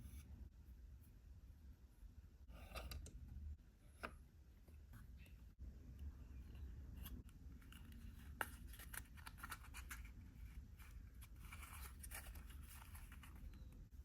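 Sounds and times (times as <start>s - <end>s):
plastic miniatures being handled: 7.0s - 13.9s.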